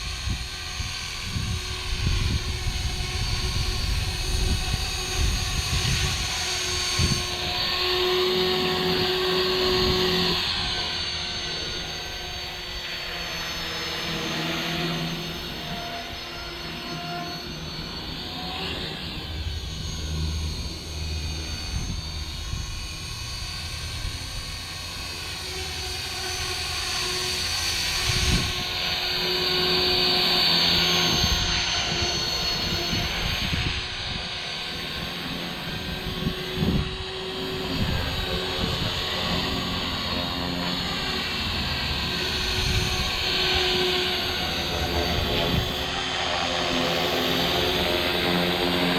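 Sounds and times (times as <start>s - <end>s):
wind buffeting microphone: 0.0s - 11.4s, 27.8s - 29.2s, 29.8s - 46.0s
model helicopter rotor and motor whine: 0.0s - 48.9s.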